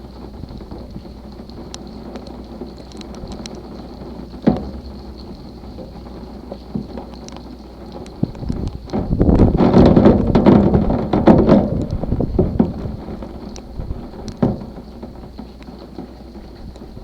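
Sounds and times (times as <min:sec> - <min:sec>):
rain falling: 0:00.0 - 0:17.0
low rumble: 0:03.2 - 0:07.2
short thump: 0:04.4 - 0:06.0.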